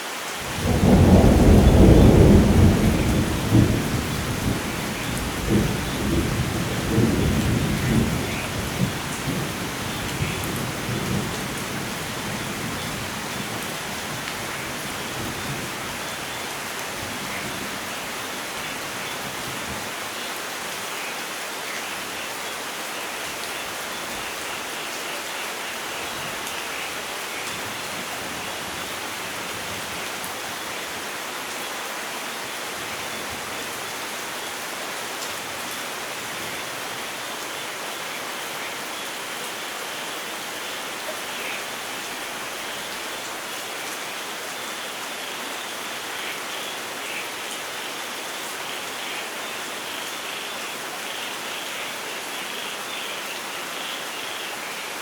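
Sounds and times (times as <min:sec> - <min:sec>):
steady rain falling: 0:00.0 - 0:55.0
low thunder rumble: 0:00.5 - 0:13.7.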